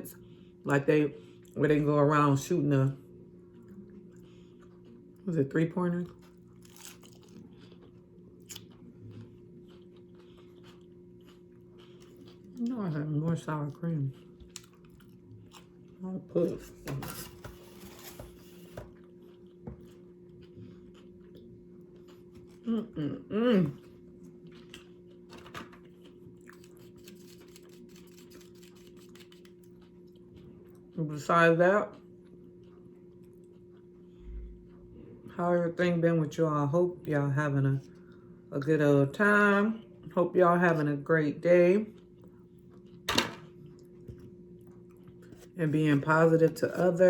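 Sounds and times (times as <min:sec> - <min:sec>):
steady low hum: 0:00.0 - 0:47.0
person chewing crunchy food: 0:03.3 - 0:05.3, 0:06.0 - 0:23.0, 0:23.6 - 0:31.0, 0:32.0 - 0:34.9, 0:41.9 - 0:46.1.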